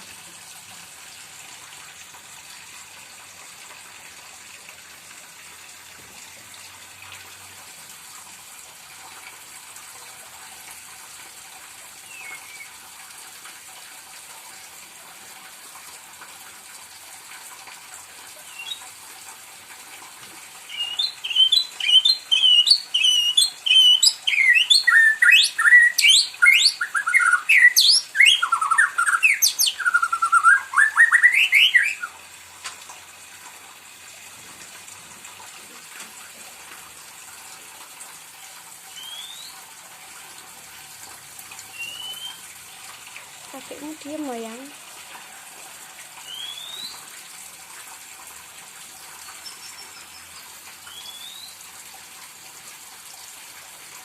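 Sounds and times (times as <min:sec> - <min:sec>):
bird singing whistled phrases: 0:12.1 - 0:12.7, 0:18.5 - 0:18.8, 0:20.7 - 0:32.2, 0:39.0 - 0:39.6, 0:41.7 - 0:42.4, 0:46.2 - 0:47.0, 0:49.4 - 0:51.6.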